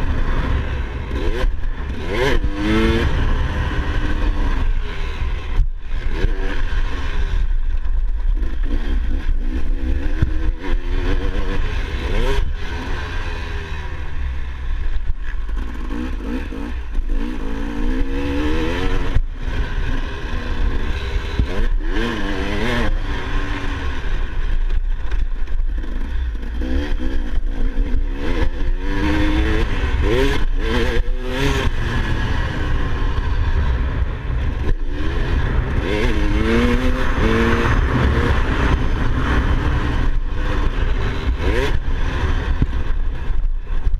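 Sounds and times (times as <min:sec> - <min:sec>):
heavy low rumble: 0:00.0 - 0:06.0
dirt bike engine revving: 0:00.0 - 0:43.9.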